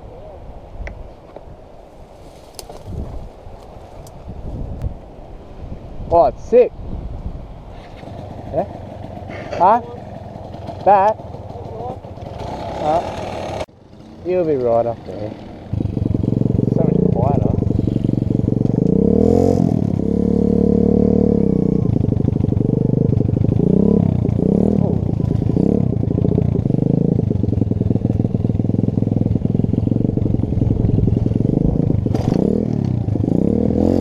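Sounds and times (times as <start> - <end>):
pit bike engine revving: 7.9 - 34.0.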